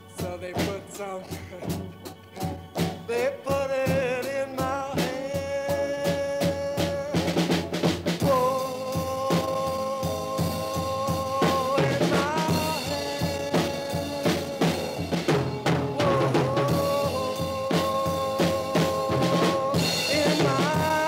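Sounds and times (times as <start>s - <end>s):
drum kit beat: 0.0s - 21.0s
sustained lead instrument notes: 8.4s - 21.0s.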